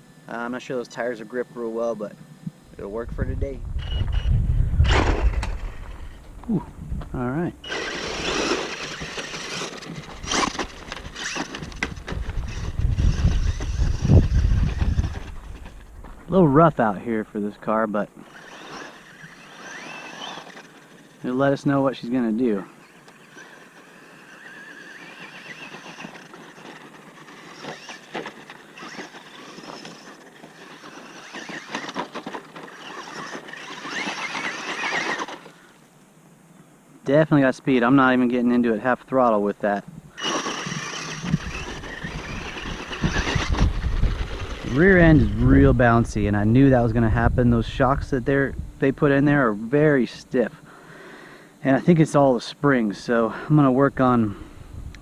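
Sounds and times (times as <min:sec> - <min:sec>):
electric motor whine: 0:00.0 - 0:17.0, 0:18.1 - 0:35.7, 0:40.1 - 0:46.3
tyres on gravel: 0:02.8 - 0:35.8, 0:37.1 - 0:50.6
toy truck clattering on dirt: 0:03.8 - 0:06.2, 0:07.6 - 0:17.0, 0:18.2 - 0:21.6, 0:22.3 - 0:35.6, 0:40.1 - 0:46.1.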